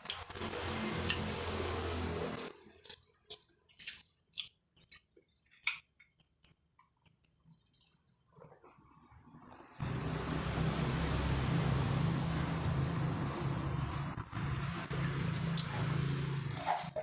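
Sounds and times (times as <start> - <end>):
wet chewing and lip-smacking: 2.7 - 6.2.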